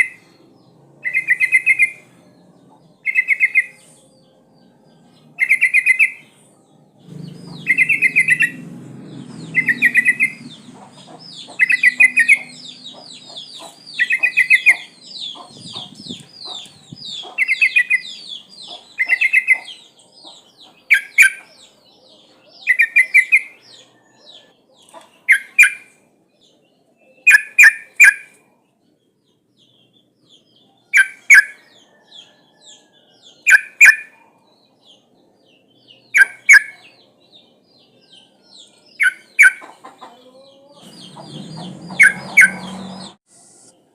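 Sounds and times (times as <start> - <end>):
bulbul chattering calls: 1.0 - 2.0, 7.0 - 8.6, 9.4 - 21.5, 27.2 - 28.4, 36.1 - 36.9, 39.0 - 40.2, 40.8 - 43.2.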